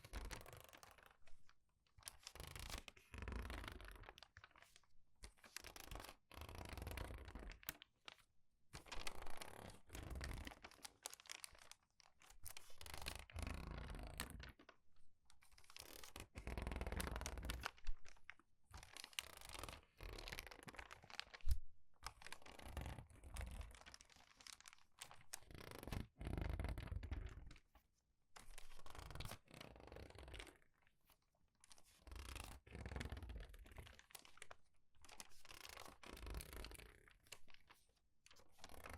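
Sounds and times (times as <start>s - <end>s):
paper pages crinkling: 20.6s - 22.6s, 33.8s - 37.8s.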